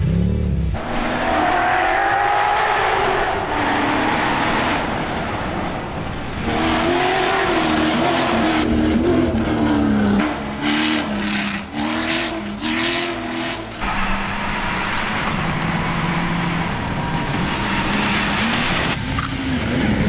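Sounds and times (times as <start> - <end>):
car engine revving hard: 0.0 - 19.0.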